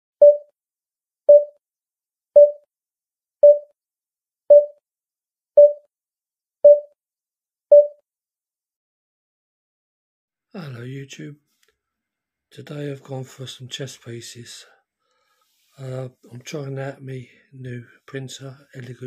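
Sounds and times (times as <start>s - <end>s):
short electronic beeps: 0.2s - 0.5s, 1.3s - 1.6s, 2.4s - 2.6s, 3.4s - 3.7s, 4.5s - 4.8s, 5.6s - 5.8s, 6.7s - 6.9s, 7.7s - 8.0s.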